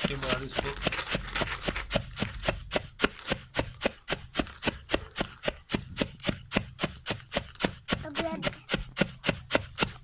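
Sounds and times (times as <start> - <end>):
grain being pounded by hand: 0.0 - 10.0.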